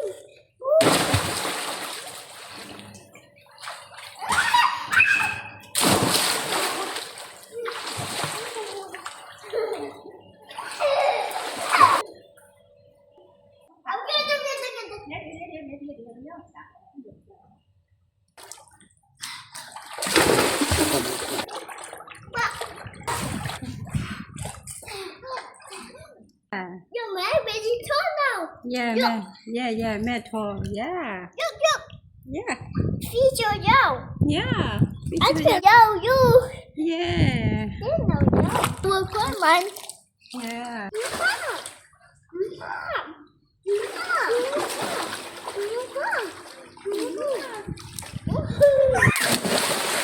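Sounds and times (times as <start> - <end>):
big splash into water: 0.8 - 2.8, 5.2 - 9.2, 19.8 - 22.0, 22.6 - 23.7, 49.1 - 50.0
water churning: 0.8 - 12.1, 19.6 - 24.8, 38.4 - 41.9, 43.7 - 50.0.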